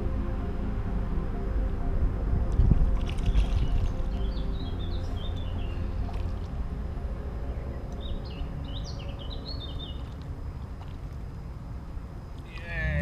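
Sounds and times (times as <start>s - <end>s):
wind rumble on microphone: 0.0s - 13.0s
birds chirping: 3.2s - 13.0s.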